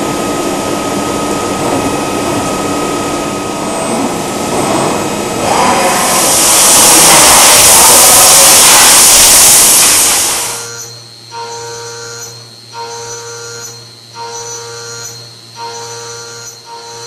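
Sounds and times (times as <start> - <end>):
milling machine rushing hiss: 0.0 - 10.7
milling machine humming and whining: 0.0 - 17.0.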